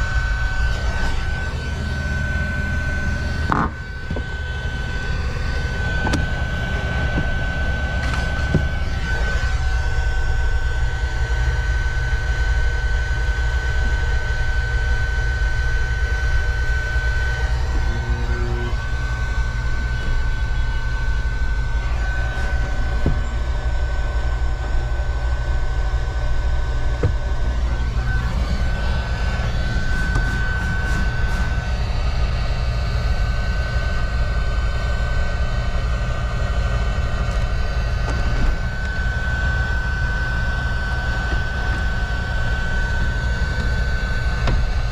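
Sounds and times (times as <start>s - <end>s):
car engine idling: 0.0s - 11.0s
high whine: 0.0s - 44.9s.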